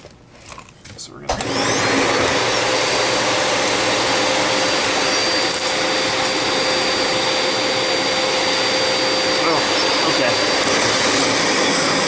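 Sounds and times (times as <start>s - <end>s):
vacuum cleaner running: 1.3s - 12.0s.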